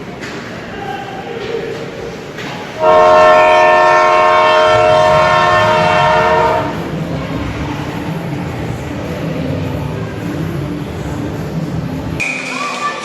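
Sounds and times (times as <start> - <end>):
arena horn blast: 2.8 - 6.8.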